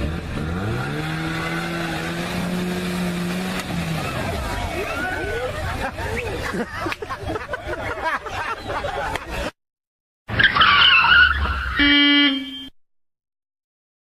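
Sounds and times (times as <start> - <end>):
car tyres skidding and squealing: 0.0 - 6.4, 10.3 - 12.3
engine rumble: 0.0 - 9.4
vehicle noise: 0.0 - 9.5.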